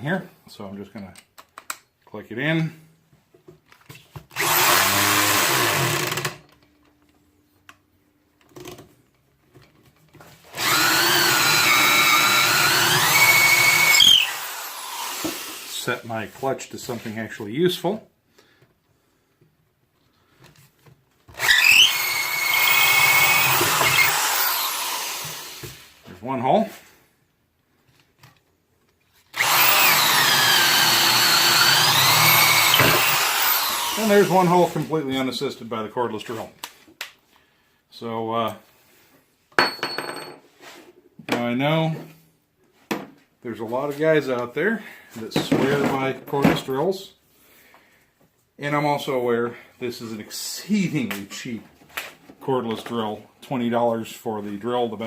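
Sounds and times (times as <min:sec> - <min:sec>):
electric drill boring wood: 0:04.4 - 0:06.4, 0:10.5 - 0:15.8, 0:21.4 - 0:25.9, 0:29.3 - 0:34.7.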